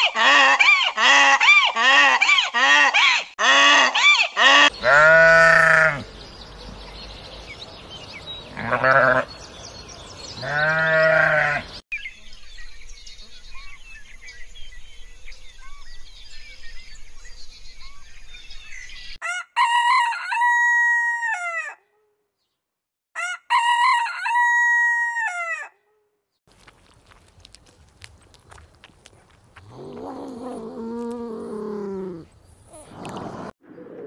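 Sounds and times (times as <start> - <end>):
outdoor background: 0.0 - 34.0
birds chirping: 4.1 - 19.2, 26.6 - 34.0
animal bleat: 4.4 - 6.1, 8.5 - 9.3, 10.4 - 11.7
rooster crowing: 19.2 - 21.8, 23.2 - 25.7.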